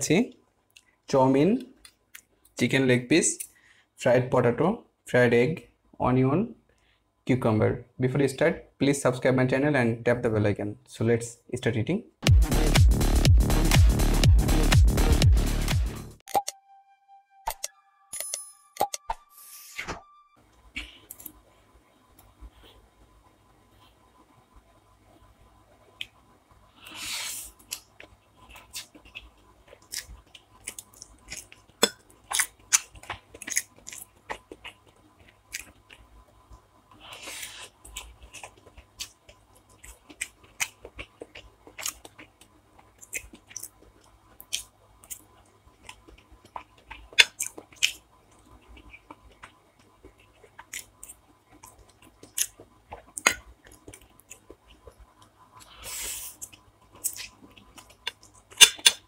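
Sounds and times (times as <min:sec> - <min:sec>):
person chewing food: 0:26.0 - 0:59.0.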